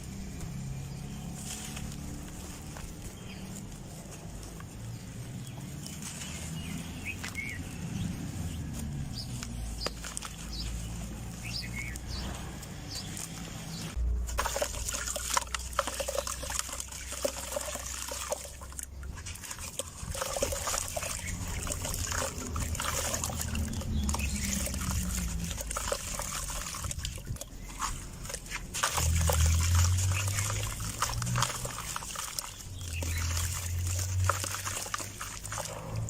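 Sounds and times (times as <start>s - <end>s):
dirt crumbling and trickling: 0.0s - 36.0s.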